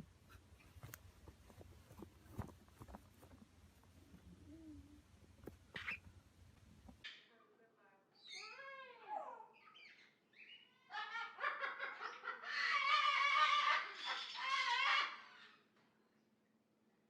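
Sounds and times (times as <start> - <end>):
parrot squawking: 5.7 - 6.0, 12.4 - 15.6.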